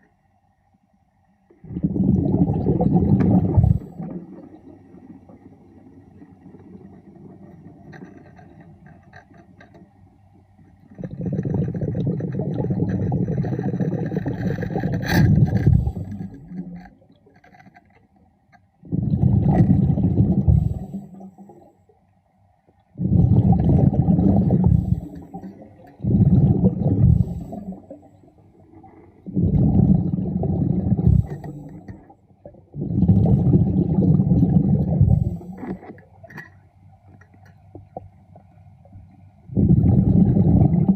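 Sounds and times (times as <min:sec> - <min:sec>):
air bubbling underwater: 0:01.6 - 0:04.5, 0:11.0 - 0:16.8, 0:18.8 - 0:21.2, 0:23.0 - 0:28.0, 0:29.2 - 0:35.9, 0:39.5 - 0:40.9.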